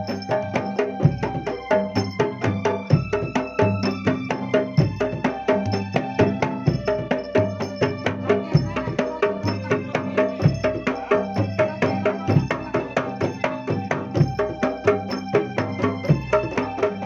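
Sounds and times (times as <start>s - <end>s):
fast drum and tapping strokes: 0.0s - 17.0s
bass drum booming: 4.8s - 9.8s.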